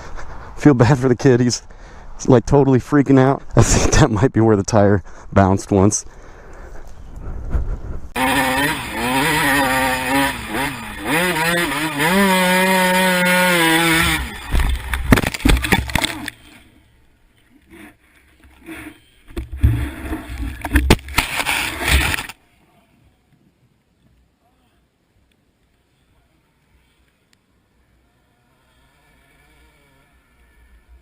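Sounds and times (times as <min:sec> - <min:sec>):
motorcycle engine accelerating: 0:08.1 - 0:16.3.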